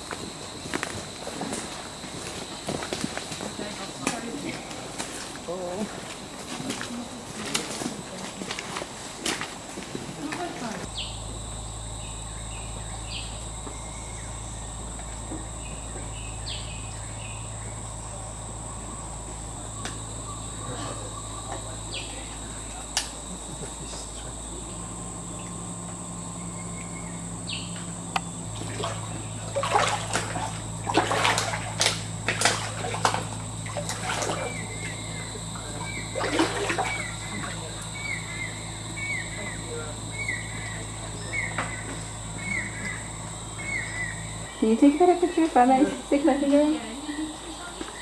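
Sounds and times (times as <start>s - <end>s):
insects droning: 0.0s - 48.0s
bird chirps: 10.9s - 11.3s, 12.0s - 14.8s, 15.4s - 17.9s, 26.3s - 28.4s, 34.4s - 45.2s
loud irregular splashes: 28.6s - 34.6s, 36.2s - 37.0s.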